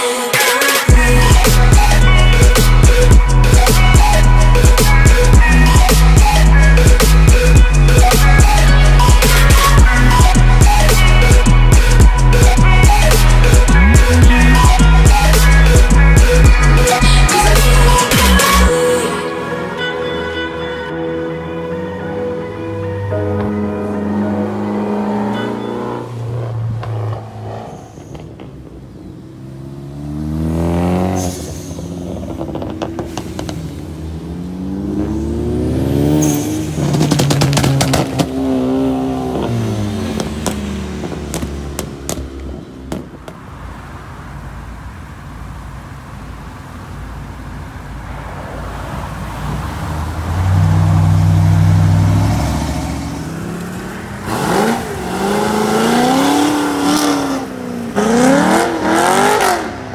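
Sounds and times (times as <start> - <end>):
cars accelerating past: 22.7 - 44.0, 48.0 - 59.9.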